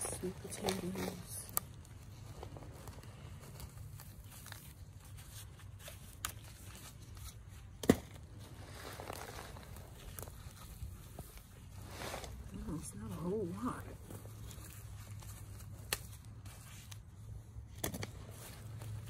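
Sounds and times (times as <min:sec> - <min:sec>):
hands digging in dry soil: 0:00.0 - 0:19.0.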